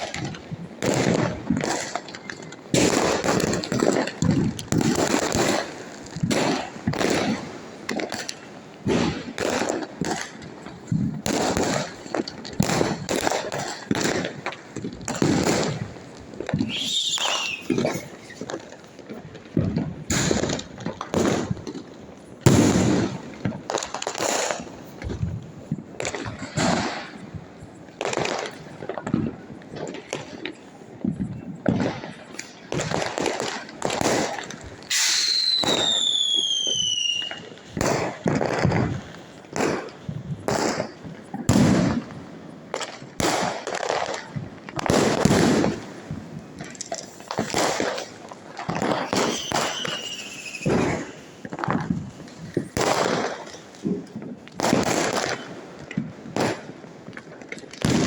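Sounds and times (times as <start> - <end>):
fireworks and firecrackers banging: 0.0 - 58.0
falling firework whistle: 16.5 - 18.5, 34.9 - 37.5, 49.0 - 51.4.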